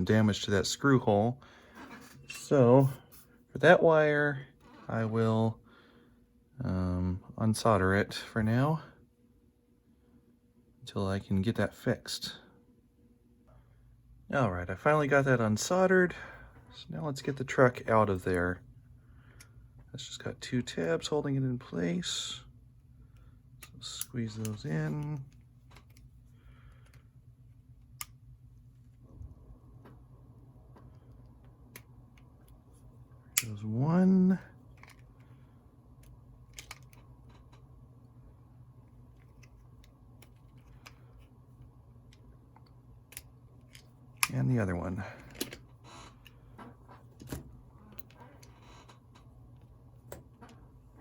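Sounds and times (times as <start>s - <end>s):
faint low hum: 0.0s - 51.0s
plastic parts clicking: 36.0s - 37.6s.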